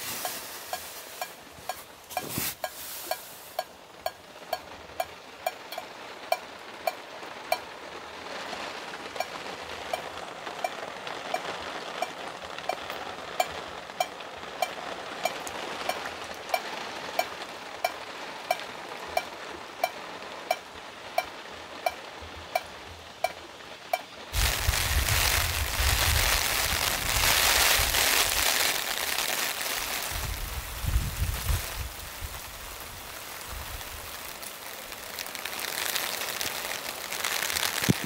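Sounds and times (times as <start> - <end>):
heavy rain: 0.0 - 38.0
water dripping: 0.2 - 7.8, 9.1 - 11.4, 12.0 - 25.8, 33.0 - 38.0.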